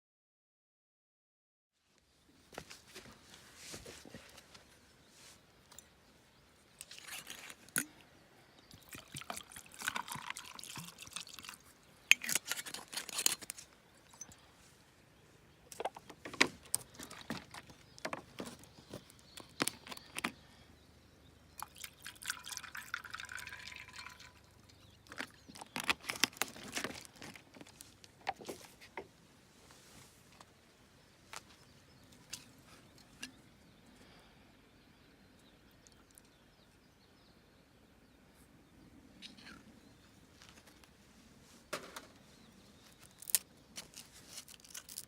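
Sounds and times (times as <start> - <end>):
liquid pouring and dribbling: 8.7 - 13.2, 21.6 - 25.7.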